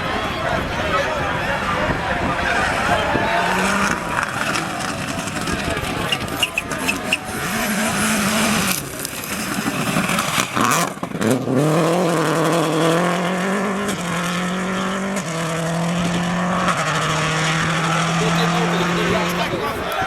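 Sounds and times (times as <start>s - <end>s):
rally car engine: 0.0s - 20.0s
tyre noise: 0.1s - 12.7s.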